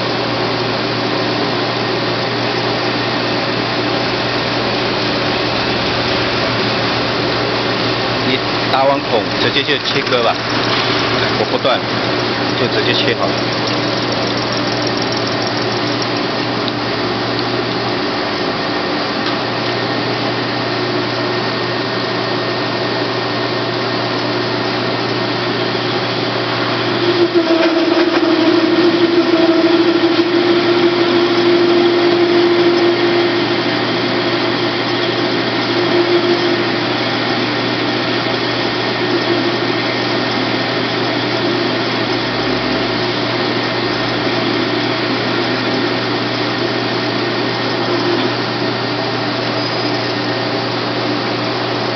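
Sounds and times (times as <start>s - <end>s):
cutting tool humming tone: 0.0s - 51.9s
metal lathe running: 0.0s - 51.9s.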